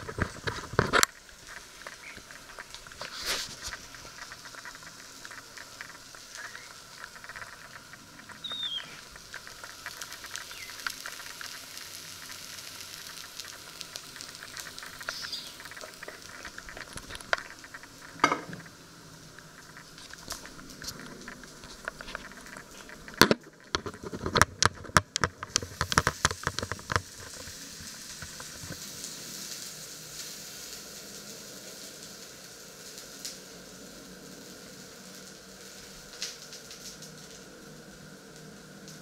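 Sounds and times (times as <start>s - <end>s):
patties sizzling in a pan: 0.0s - 39.0s
knock: 18.2s - 18.6s.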